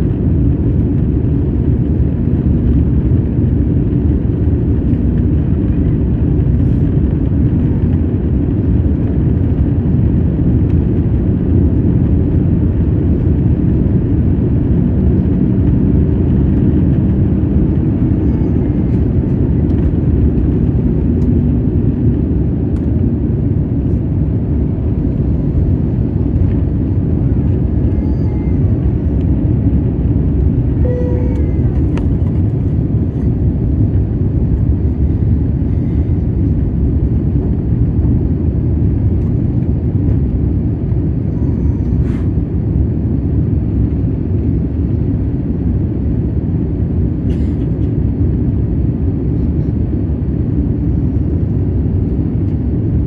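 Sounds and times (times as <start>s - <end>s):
airliner cabin rumble: 0.0s - 53.0s
short tone: 30.8s - 32.7s.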